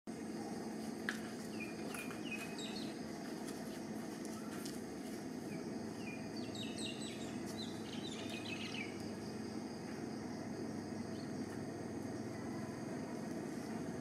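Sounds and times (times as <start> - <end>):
outdoor background hum: 0.1 - 14.0
small bird chirping: 1.5 - 3.0, 5.4 - 9.3.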